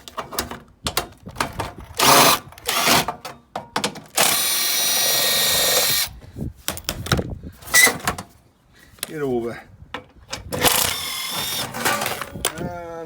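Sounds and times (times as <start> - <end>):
power drill spinning: 2.0 - 3.1, 4.2 - 6.1, 10.6 - 12.4.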